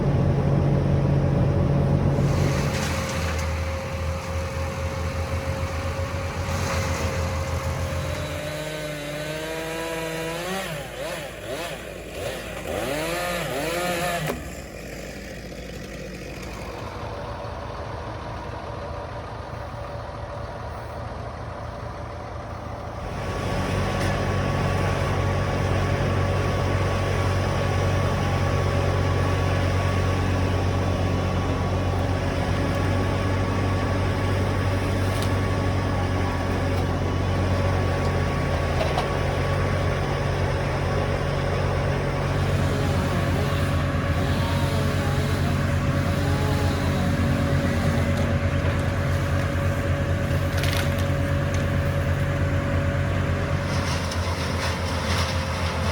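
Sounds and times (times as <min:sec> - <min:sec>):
engine running: 0:00.0 - 0:55.9.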